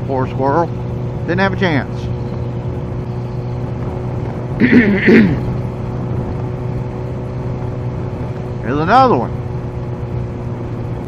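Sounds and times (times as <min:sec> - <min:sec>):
motorcycle engine cruising: 0:00.0 - 0:11.0
rider vocal sound: 0:04.6 - 0:05.5.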